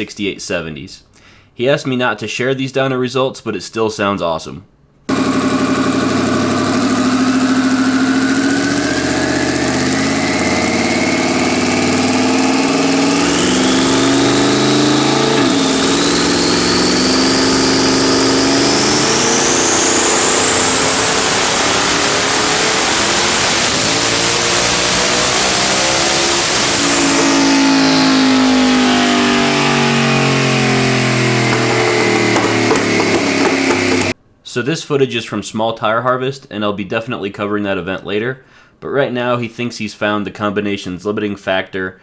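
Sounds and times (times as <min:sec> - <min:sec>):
car engine running hard: 0:05.1 - 0:34.2
turbo whine climbing in pitch: 0:05.1 - 0:34.2.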